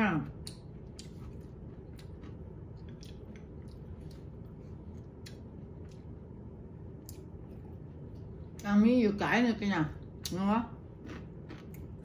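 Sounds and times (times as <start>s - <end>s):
steady low hum: 0.0s - 12.0s
person chewing: 0.4s - 8.4s, 10.8s - 12.0s.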